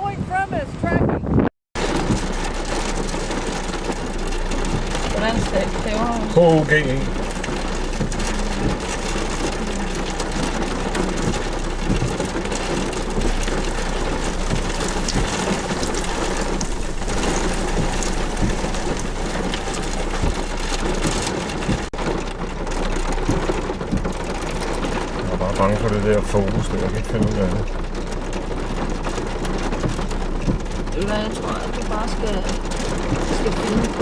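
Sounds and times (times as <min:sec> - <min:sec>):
storm wind: 0:00.0 - 0:25.2
rain: 0:01.8 - 0:34.0.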